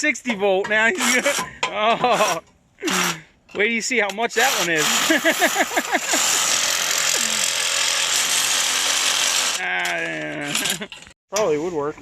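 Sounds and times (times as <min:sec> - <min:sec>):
power tool rattling: 0:00.9 - 0:03.2, 0:04.4 - 0:11.1.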